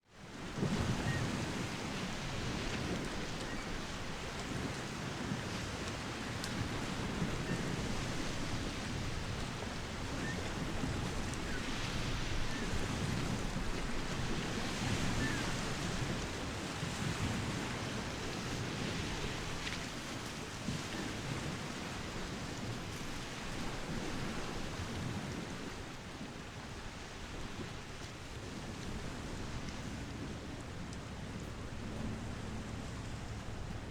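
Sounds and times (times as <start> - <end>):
wind: 0.0 - 33.9
low unsteady engine rumble: 29.2 - 33.9.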